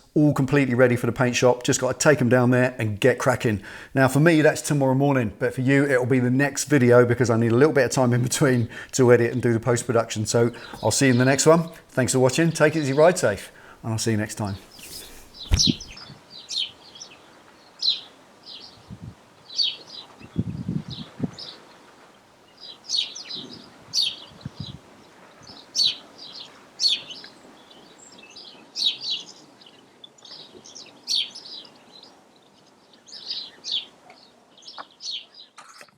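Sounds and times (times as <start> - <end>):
birds singing: 7.4 - 21.7, 22.5 - 35.6
low knocks: 15.4 - 16.0.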